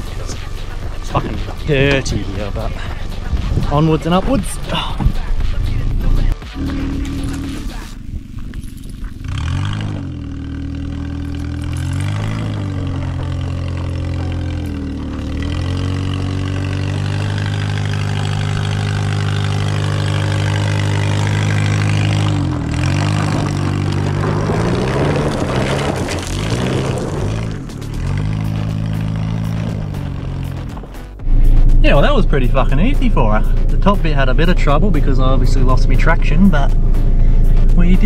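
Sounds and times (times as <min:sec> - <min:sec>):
car engine pulling uphill: 0:00.0 - 0:38.0
tyres scrabbling on loose dirt: 0:07.1 - 0:31.2.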